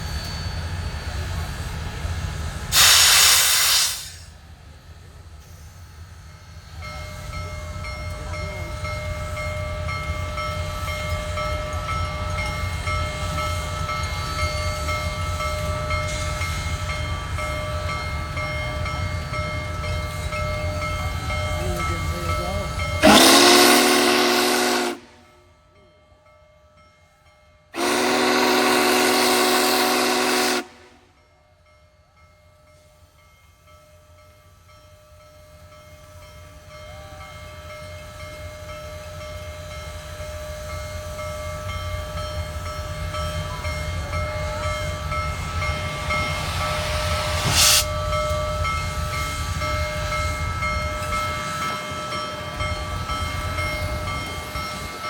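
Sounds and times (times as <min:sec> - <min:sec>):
steam whistle chord: 0:23.0 - 0:25.3, 0:27.8 - 0:31.1, 0:44.7 - 0:49.5.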